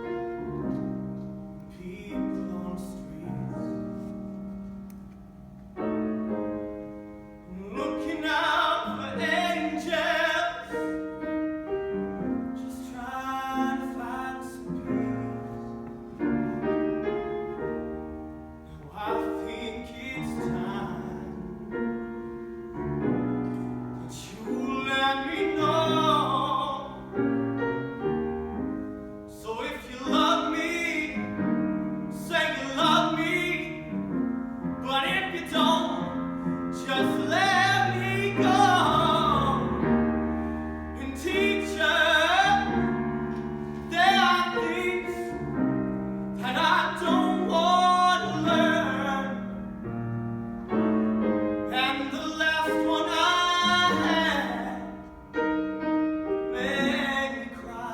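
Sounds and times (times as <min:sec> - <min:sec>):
piano accompaniment: 0:00.0 - 0:57.9
person singing with vibrato: 0:43.7 - 0:45.5, 0:51.7 - 0:55.2.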